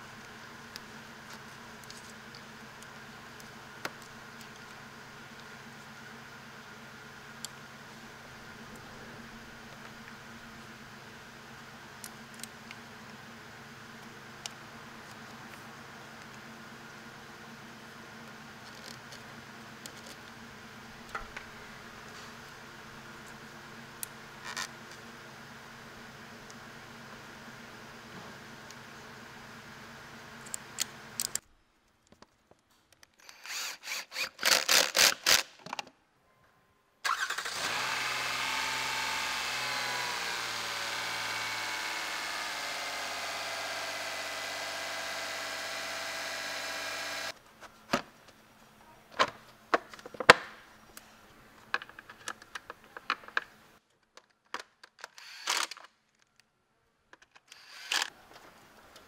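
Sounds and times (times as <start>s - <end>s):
clicks and knocks of parts handled: 30.4s - 33.5s, 49.1s - 56.5s, 57.1s - 59.0s
car engine cranking: 37.1s - 45.3s.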